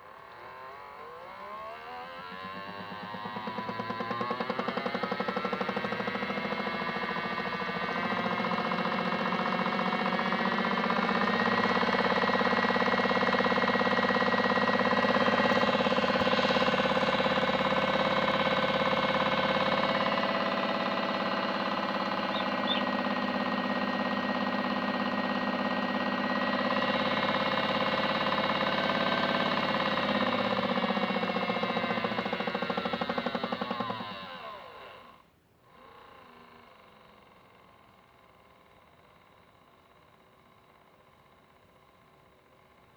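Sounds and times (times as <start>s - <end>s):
toy washing machine spinning: 2.0s - 35.0s.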